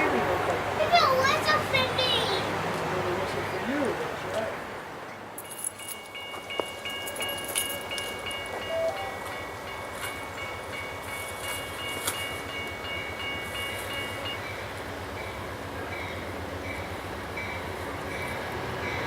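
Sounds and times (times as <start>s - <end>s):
passing train rumble: 0.0s - 19.0s
crossing bell ringing rapidly: 5.4s - 19.0s.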